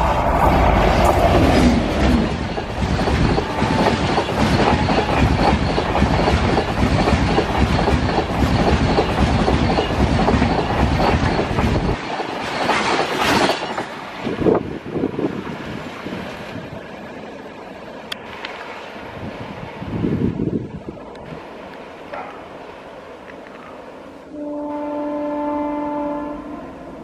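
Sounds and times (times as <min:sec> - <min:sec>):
train wheels clattering on rails: 0:00.0 - 0:14.6
locomotive rushing past: 0:00.0 - 0:23.3.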